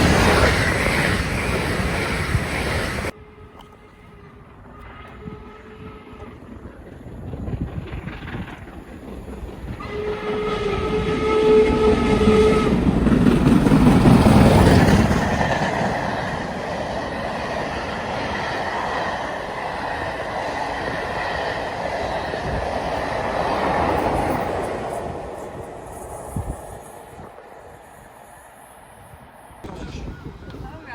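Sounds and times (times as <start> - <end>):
train wheels rumbling on rail: 0.0 - 30.9
train horn blast: 3.1 - 6.5, 9.8 - 13.0.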